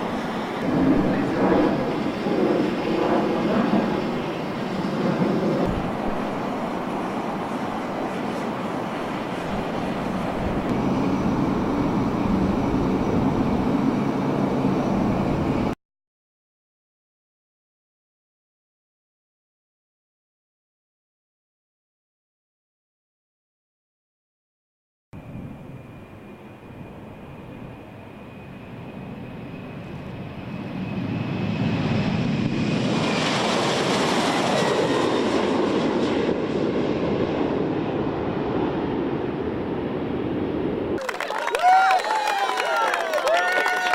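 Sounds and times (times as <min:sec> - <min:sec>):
jet aircraft engines rumbling: 0:00.0 - 0:15.8, 0:25.2 - 0:43.9.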